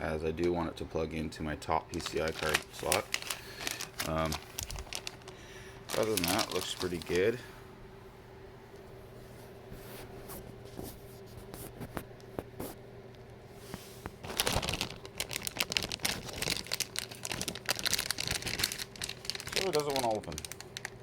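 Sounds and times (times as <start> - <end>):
plastic packaging crinkling: 1.9 - 7.5, 14.1 - 21.0.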